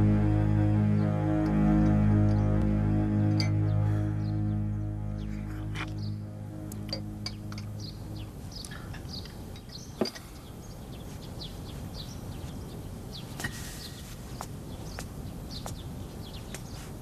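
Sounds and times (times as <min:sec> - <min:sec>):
low background rumble: 0:00.0 - 0:09.8
small birds chirping: 0:03.5 - 0:17.0.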